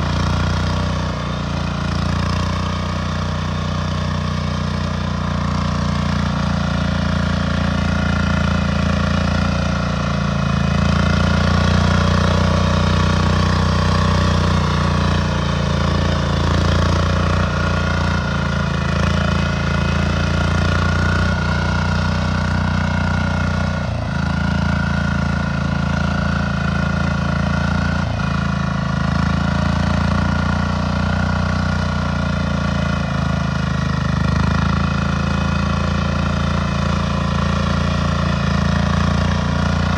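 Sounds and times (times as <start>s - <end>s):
tractor engine running: 0.0s - 22.9s, 32.5s - 39.9s.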